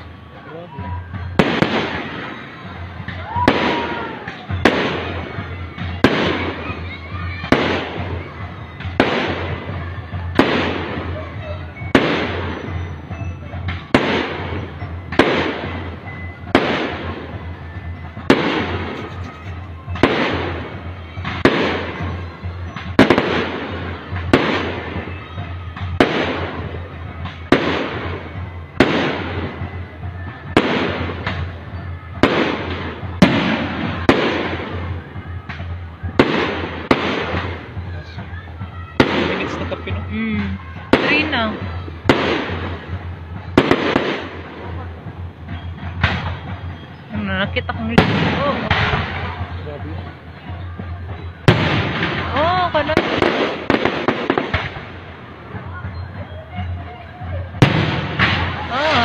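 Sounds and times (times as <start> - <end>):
rumble after firework bangs: 0.0 - 59.0
firework shells bursting: 11.9 - 25.2.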